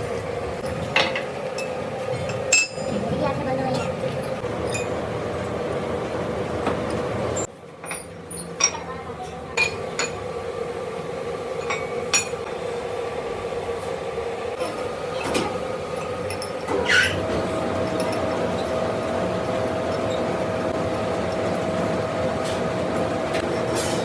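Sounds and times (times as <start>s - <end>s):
machine tool humming: 14.8s - 24.0s
short squeal: 16.8s - 17.2s.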